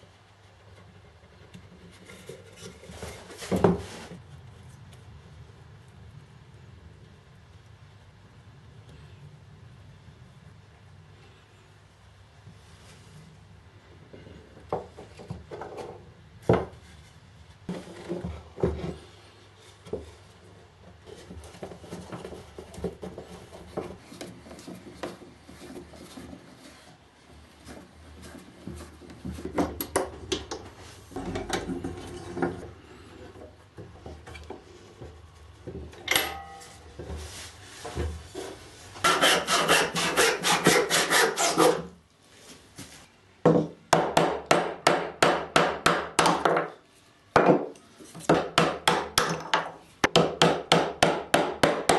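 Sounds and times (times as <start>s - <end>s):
hand tools scraping wood: 37.2s - 42.0s.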